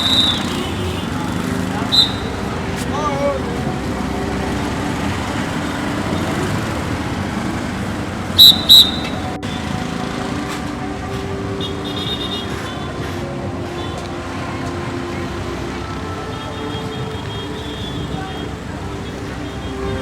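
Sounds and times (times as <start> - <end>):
city street traffic: 0.0 - 20.0
loud high-pitched toots: 8.4 - 10.3.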